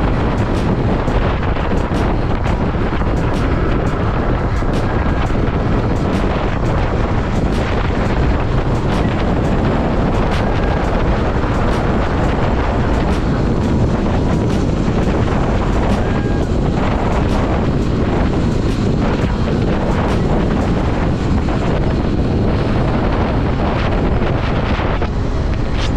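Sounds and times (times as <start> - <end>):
road and engine noise: 0.0 - 25.9
wind buffeting microphone: 0.0 - 25.9.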